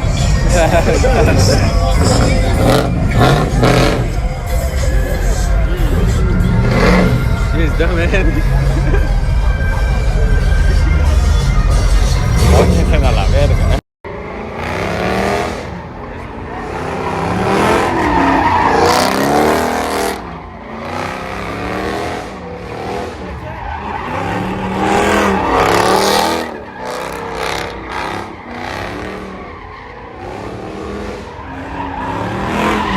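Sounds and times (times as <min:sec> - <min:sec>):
car engine revving: 0:00.0 - 0:32.9
tires squealing and skidding: 0:00.0 - 0:32.9.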